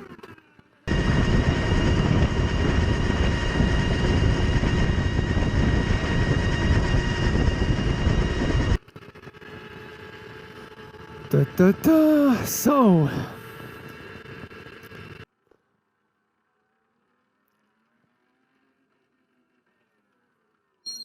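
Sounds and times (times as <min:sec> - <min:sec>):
electric motor whine: 0:00.0 - 0:15.3
wind noise on microphone: 0:00.9 - 0:08.8.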